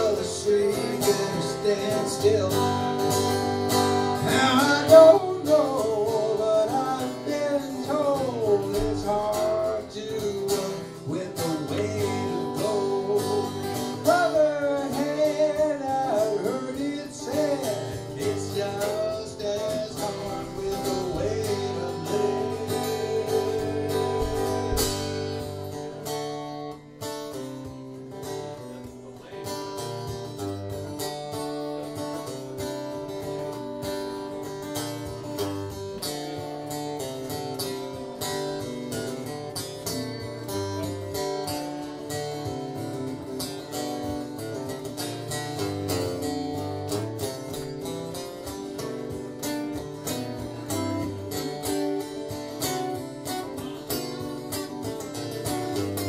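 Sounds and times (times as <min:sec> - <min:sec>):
guitar strumming: 0:00.0 - 0:56.0
bass line: 0:18.0 - 0:26.5.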